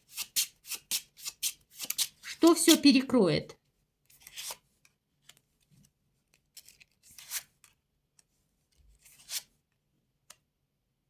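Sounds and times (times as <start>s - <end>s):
playing cards sliding: 0.1s - 2.8s, 4.2s - 4.6s, 6.6s - 7.8s, 9.0s - 9.5s.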